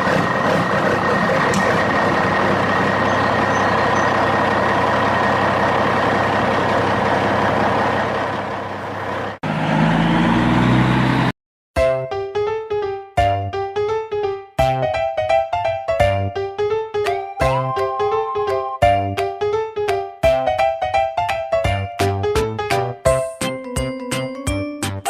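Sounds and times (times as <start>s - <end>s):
lower engine hum: 0.0s - 11.3s
vehicle engine running with whine: 0.0s - 11.4s.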